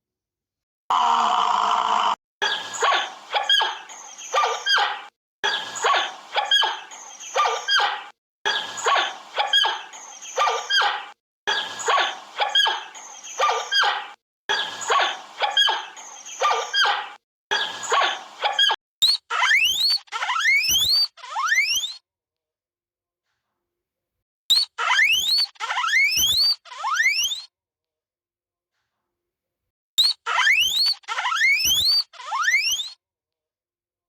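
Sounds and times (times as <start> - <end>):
animal sharp high calls: 30.0 - 33.0.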